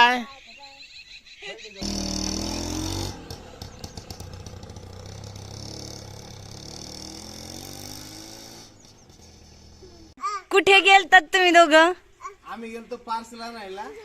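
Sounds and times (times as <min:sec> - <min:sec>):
small engine starting and running: 0:01.8 - 0:10.1.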